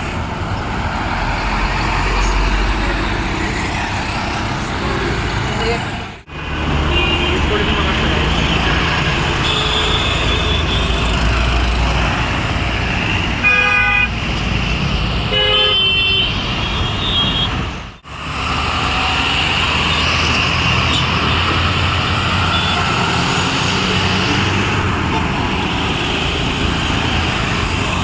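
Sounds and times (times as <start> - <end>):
heavy bus engines running: 0.0 - 28.0
road traffic rumble: 0.0 - 28.0
multi-tone vehicle horn blasts: 6.8 - 8.2, 9.4 - 11.0, 13.4 - 14.1, 15.3 - 17.6.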